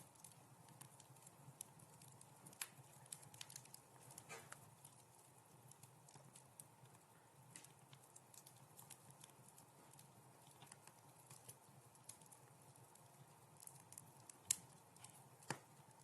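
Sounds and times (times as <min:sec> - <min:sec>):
wood fire crackling in fireplace: 0:00.0 - 0:16.0.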